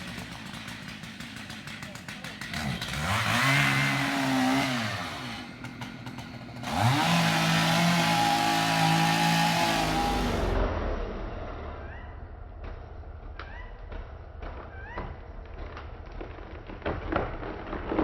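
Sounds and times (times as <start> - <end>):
chainsaw engine revving: 0.0 - 10.6.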